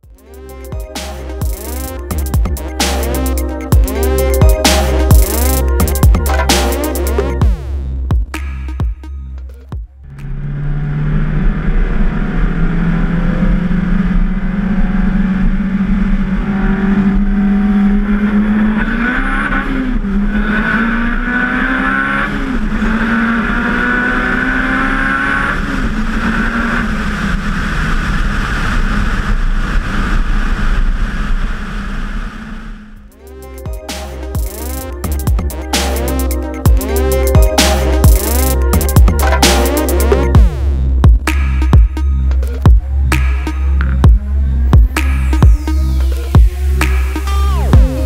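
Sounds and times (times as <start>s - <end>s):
car engine accelerating hard: 9.9s - 48.0s.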